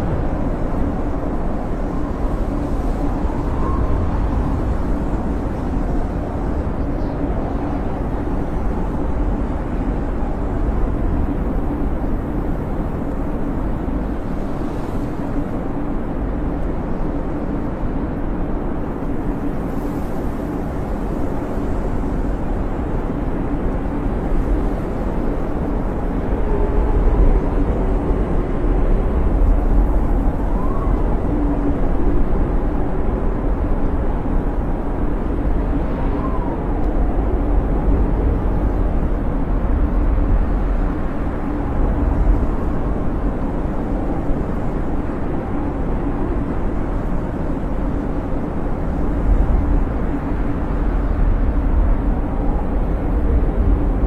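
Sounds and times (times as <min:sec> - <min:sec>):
wind rumbling: 0:00.0 - 0:54.0
wind whistles: 0:00.0 - 0:54.0.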